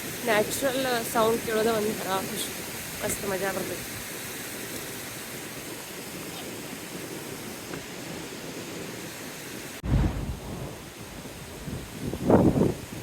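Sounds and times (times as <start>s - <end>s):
stream water rushing over rocks: 0.0s - 9.8s
low rumble: 9.8s - 12.0s.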